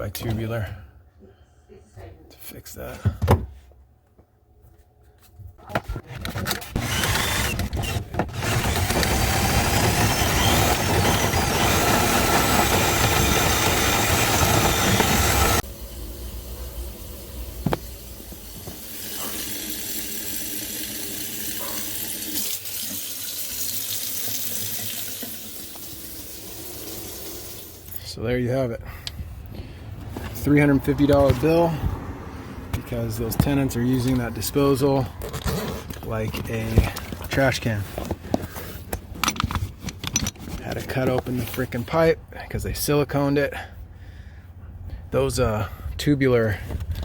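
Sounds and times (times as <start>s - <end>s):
faucet running into sink: 18.4s - 27.9s.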